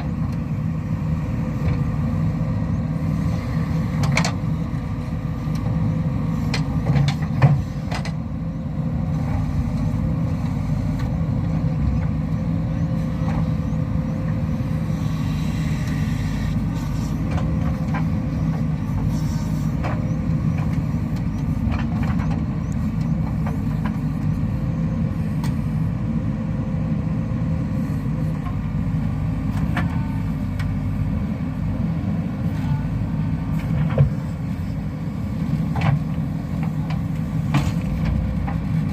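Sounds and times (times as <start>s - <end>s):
heavy diesel engine droning: 0.0s - 38.9s
machinery knocks and clanks: 6.5s - 8.2s, 35.7s - 38.9s.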